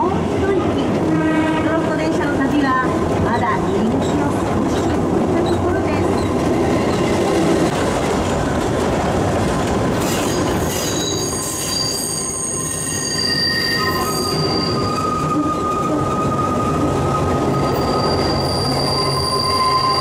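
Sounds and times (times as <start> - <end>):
train wheels rumbling on track: 0.0 - 20.0
wheels squealing on rails: 9.9 - 20.0.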